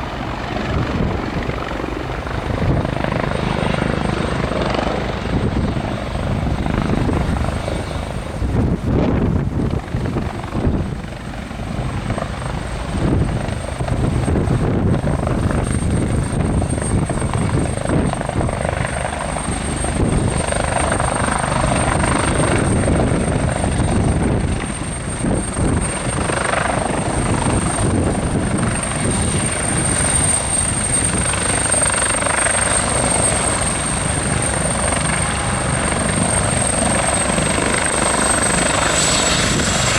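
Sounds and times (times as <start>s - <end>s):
high-pitched turbine whine: 0.0s - 39.9s
wind buffeting microphone: 0.0s - 39.9s
helicopter rotor thudding: 20.0s - 39.9s.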